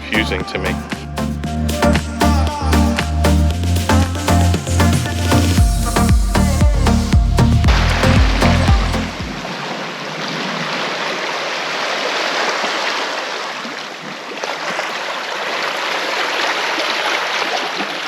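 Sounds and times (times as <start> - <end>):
electronic dance music: 0.0 - 9.6.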